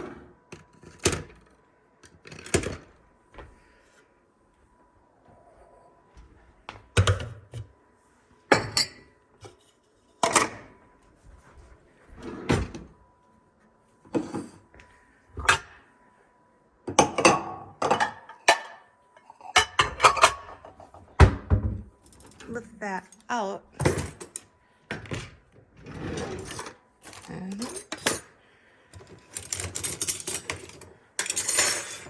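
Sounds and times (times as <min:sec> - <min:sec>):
dishware clinking set down: 0:08.5 - 0:09.1, 0:16.9 - 0:18.8.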